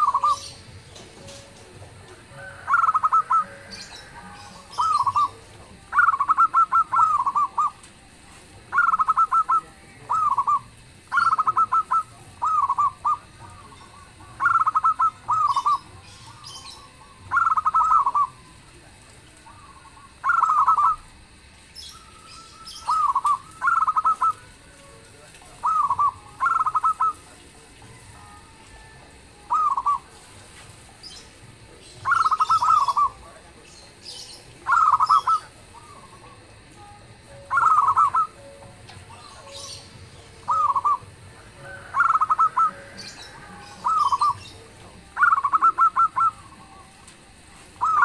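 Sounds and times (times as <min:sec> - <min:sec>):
dove cooing: 0:00.0 - 0:48.0.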